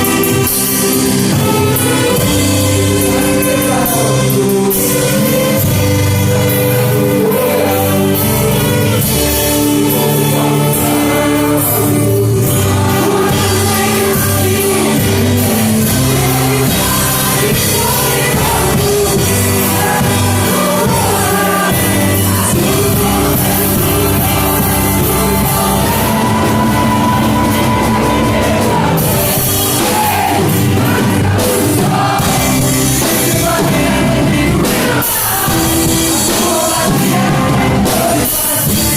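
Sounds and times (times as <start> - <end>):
orchestra playing: 0.0 - 37.8
choir singing gospel: 0.0 - 38.9.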